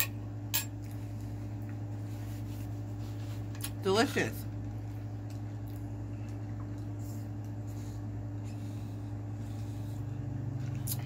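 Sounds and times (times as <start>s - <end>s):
low hum: 0.0s - 11.0s
soft chewing: 4.6s - 11.0s.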